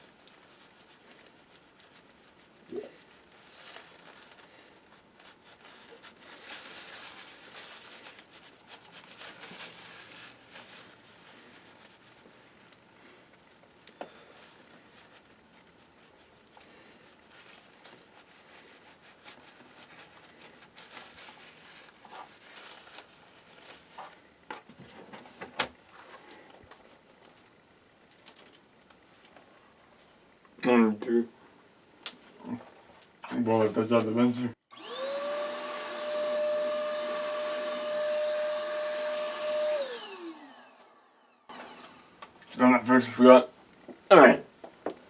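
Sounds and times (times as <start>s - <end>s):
hands rustling and scraping: 0.0s - 30.3s
electric fan tool whining: 34.7s - 42.5s.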